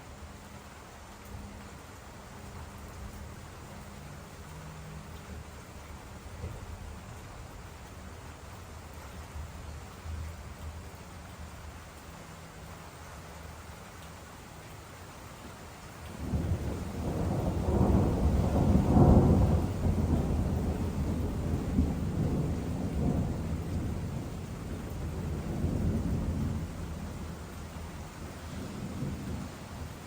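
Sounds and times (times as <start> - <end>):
rolling thunder: 16.2 - 30.0.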